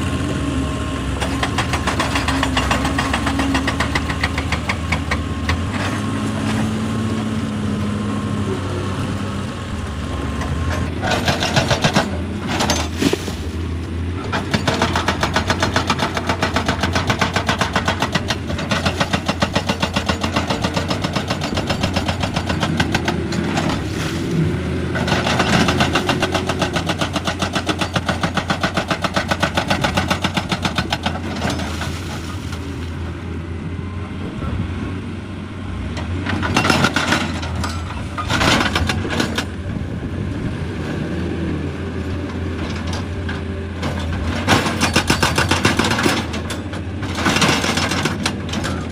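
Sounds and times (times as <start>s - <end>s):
diesel engine drone: 0.0s - 48.9s
hydraulic breaker hammering rock: 1.2s - 6.7s, 10.9s - 13.0s, 14.2s - 23.8s, 24.9s - 32.0s, 36.3s - 39.5s, 43.9s - 48.9s.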